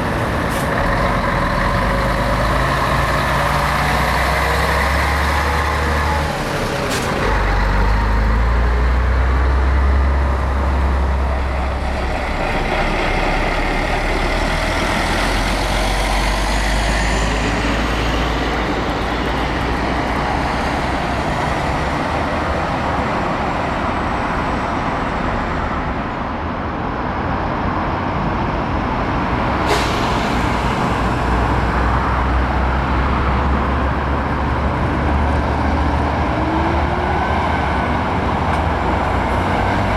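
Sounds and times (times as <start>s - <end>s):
diesel trucks engine rumble: 0.0s - 39.9s
air brake hiss: 29.6s - 31.1s.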